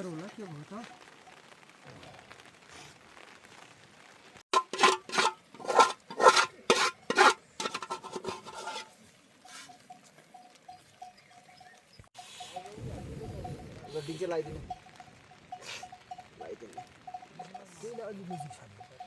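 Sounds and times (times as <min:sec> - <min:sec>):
loud rasping scraping strokes: 0:04.6 - 0:08.9.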